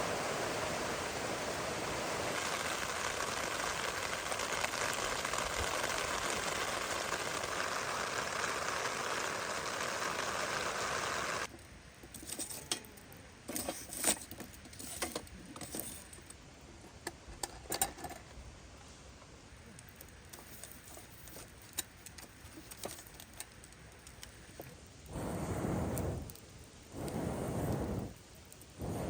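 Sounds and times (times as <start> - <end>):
heavy rain hissing: 0.0 - 11.5, 24.4 - 29.0.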